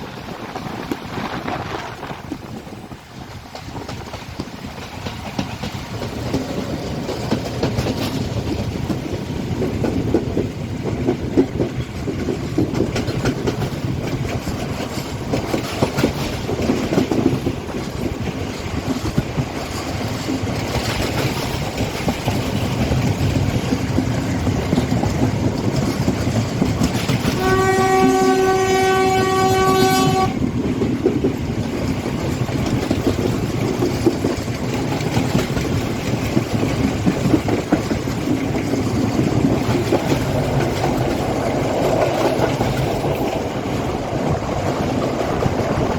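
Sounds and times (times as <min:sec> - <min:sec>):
train wheels clickety-clack on track: 0:00.0 - 0:45.9
train horn blast: 0:27.2 - 0:30.5.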